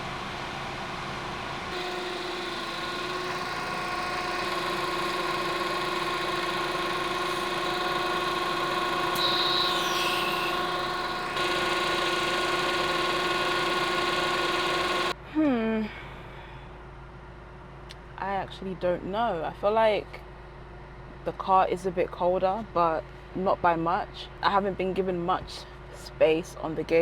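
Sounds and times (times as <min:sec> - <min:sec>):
car engine idling: 0:00.0 - 0:15.2.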